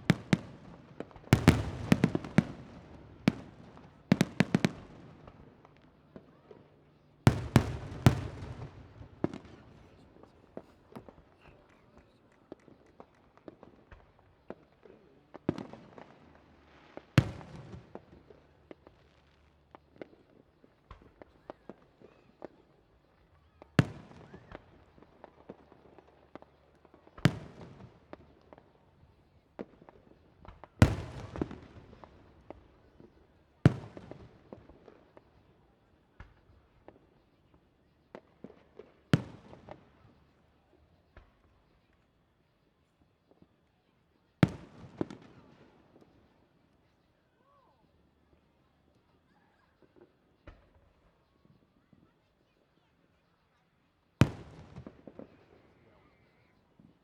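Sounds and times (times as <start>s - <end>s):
fireworks crackling: 0.0s - 6.0s.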